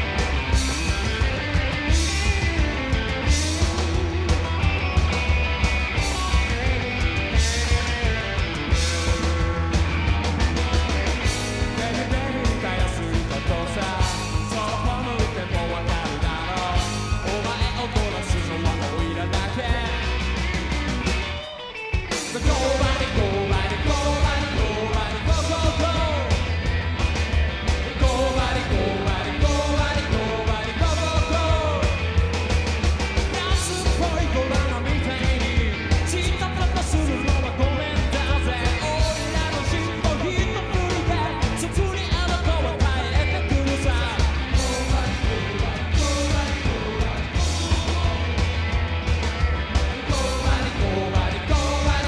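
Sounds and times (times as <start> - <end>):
rockabilly band playing: 0.0 - 52.0
lead vocal singing: 11.6 - 20.4, 22.1 - 26.8, 27.5 - 32.4, 33.0 - 49.0, 49.6 - 52.0.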